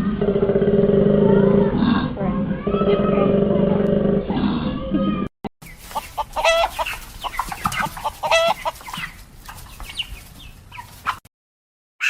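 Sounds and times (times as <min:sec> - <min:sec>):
bird calling: 0:05.6 - 0:11.2.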